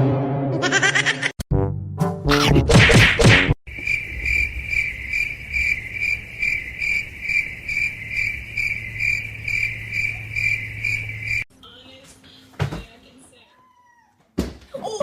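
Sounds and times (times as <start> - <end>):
pulsing insect trill: 3.7 - 11.5.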